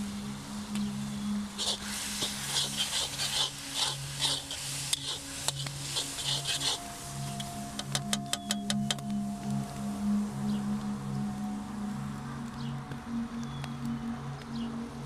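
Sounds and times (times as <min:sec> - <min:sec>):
spatula scraping frying food: 0:01.6 - 0:06.9.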